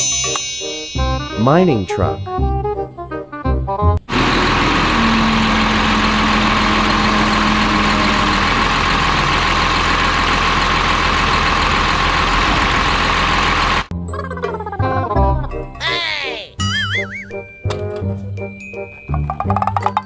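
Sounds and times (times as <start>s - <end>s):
truck engine droning: 4.0s - 13.9s.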